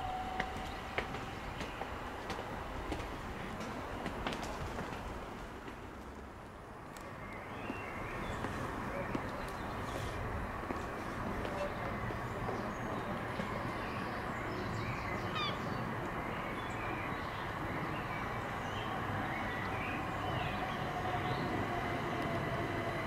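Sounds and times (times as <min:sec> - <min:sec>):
electric train hum: 0:00.0 - 0:23.0
bird calls: 0:11.6 - 0:21.8.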